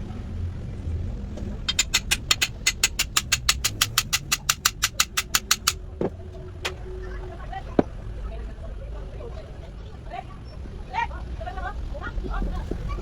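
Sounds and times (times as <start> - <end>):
steady low rumble: 0.0 - 13.0
rapid mechanical clicks: 1.6 - 5.9
single knocks: 1.7 - 6.8.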